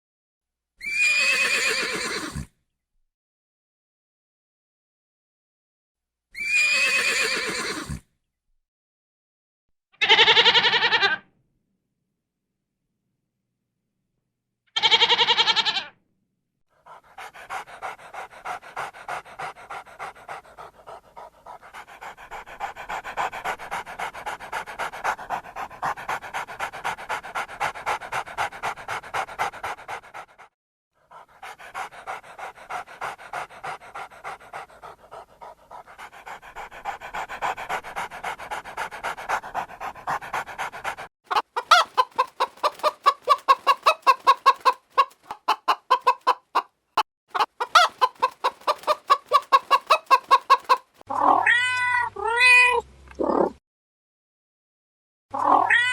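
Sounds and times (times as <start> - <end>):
dog panting: 16.8 - 46.6, 47.3 - 51.0
chicken clucking: 41.3 - 46.7, 47.3 - 51.4.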